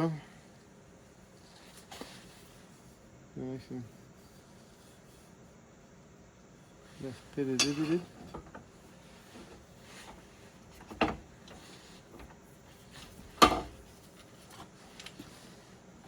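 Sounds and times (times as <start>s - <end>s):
metal blade knocks: 7.6s - 8.0s.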